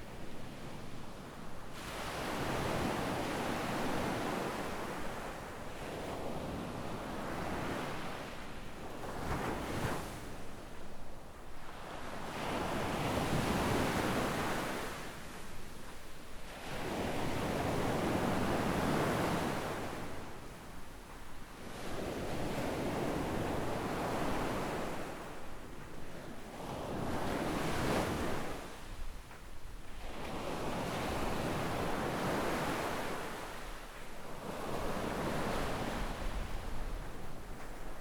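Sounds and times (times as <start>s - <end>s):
small waves breaking on beach: 16.5s - 38.0s.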